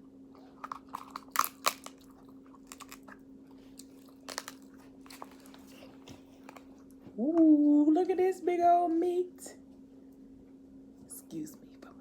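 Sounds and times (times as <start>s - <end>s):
crab shell cracking: 0.6s - 3.2s, 3.8s - 5.5s.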